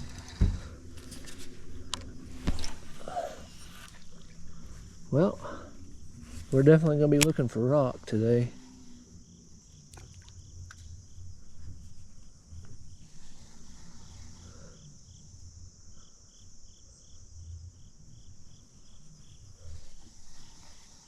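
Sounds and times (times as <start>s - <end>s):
insects chirping chorus: 0.0s - 21.0s
repeating insect chirp: 0.0s - 21.0s.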